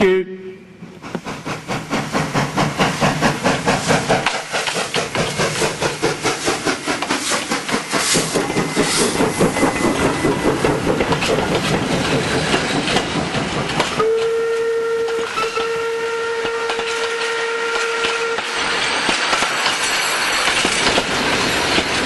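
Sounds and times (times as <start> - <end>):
steam train chuffing: 0.0 - 22.0
steam whistle: 14.0 - 18.6.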